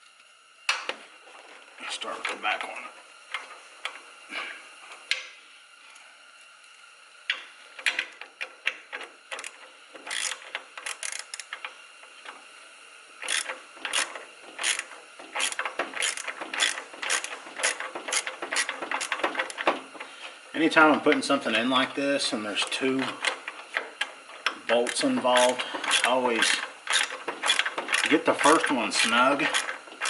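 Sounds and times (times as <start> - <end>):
socket ratchet clicking: 7.3 - 11.7, 13.2 - 19.7, 23.2 - 28.1.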